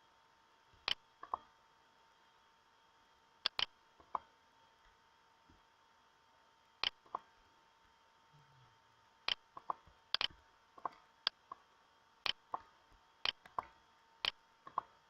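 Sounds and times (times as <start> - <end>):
faint steady hum: 0.0 - 15.0
sharp clicks: 3.4 - 3.7, 6.8 - 7.2, 9.3 - 11.4, 13.2 - 14.9.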